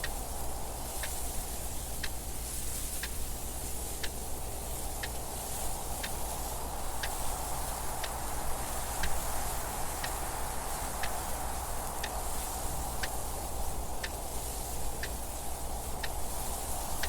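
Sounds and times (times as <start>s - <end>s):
mechanical clock ticking: 3.9s - 17.0s.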